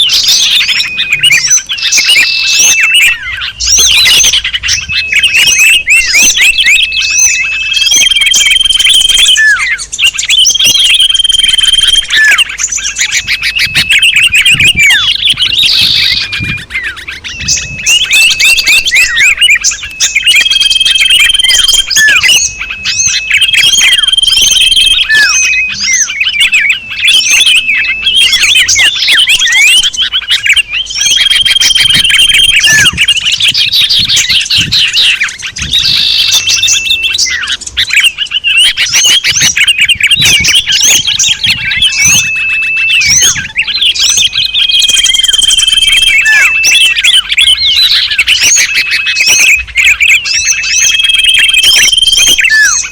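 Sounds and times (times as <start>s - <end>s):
songbirds chirping and trilling: 0.0s - 52.9s.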